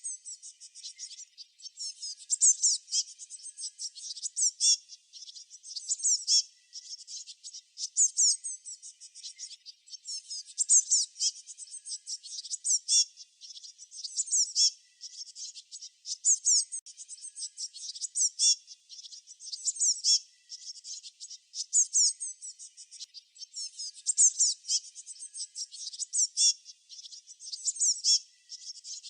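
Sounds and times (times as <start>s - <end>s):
songbirds chirping: 0.0s - 29.0s.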